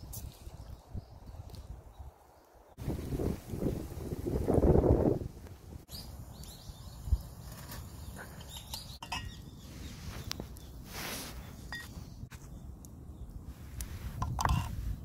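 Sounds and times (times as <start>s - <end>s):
small birds chirping: 5.9s - 13.6s.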